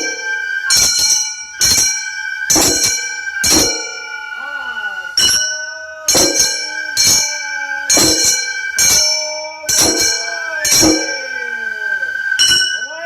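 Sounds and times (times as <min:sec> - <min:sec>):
high held flute note: 0:00.0 - 0:13.0
hand gongs struck: 0:02.5 - 0:04.2, 0:05.2 - 0:11.3.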